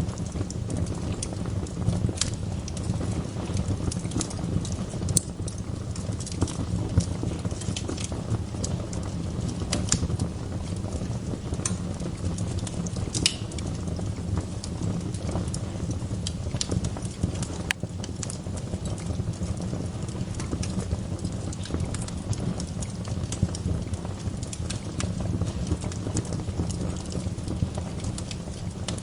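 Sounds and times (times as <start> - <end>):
fire crackles and pops: 0.0 - 29.0
low rumble of flames: 0.0 - 29.0.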